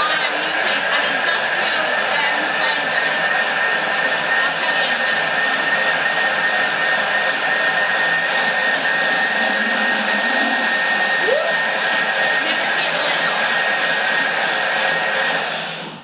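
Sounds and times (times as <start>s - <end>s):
blender motor whining: 0.0s - 16.0s.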